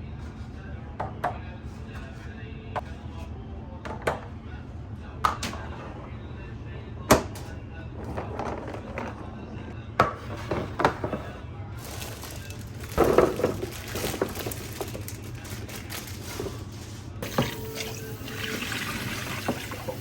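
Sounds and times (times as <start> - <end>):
water running: 11.8 - 20.0.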